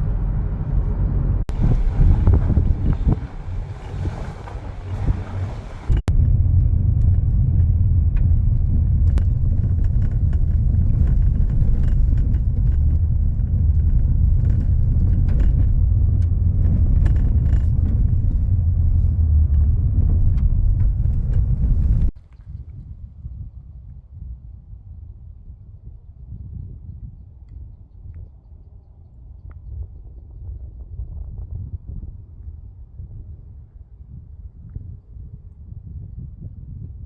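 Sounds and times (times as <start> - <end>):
vehicle rumbling in motion: 0.0 - 26.1
faint ticks and rattles: 9.0 - 18.4.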